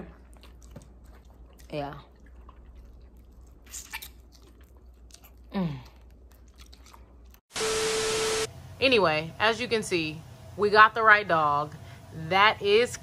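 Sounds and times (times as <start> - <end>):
chewing chicken wings: 0.0 - 7.4.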